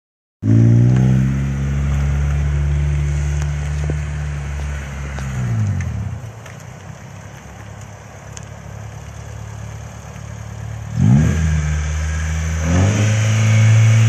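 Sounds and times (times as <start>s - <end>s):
car engine revving hard: 0.4s - 3.4s, 10.9s - 14.0s.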